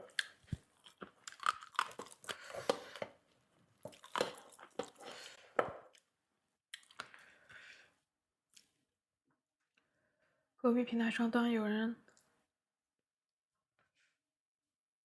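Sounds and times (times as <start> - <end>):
crunching food: 0.0 - 3.0, 3.8 - 5.0.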